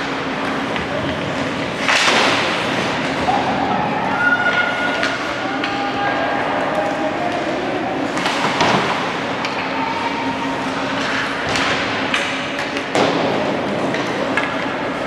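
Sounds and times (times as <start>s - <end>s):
hockey sticks and puck knocks: 0.0s - 3.2s, 8.1s - 9.7s, 10.9s - 14.8s
arena crowd hubbub: 0.0s - 15.0s.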